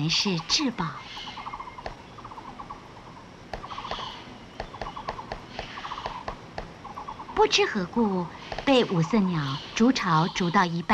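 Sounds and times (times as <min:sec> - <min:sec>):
bird tapping on wood: 0:01.8 - 0:02.0, 0:03.5 - 0:07.1, 0:08.5 - 0:08.8
rapid ticking: 0:03.4 - 0:07.4.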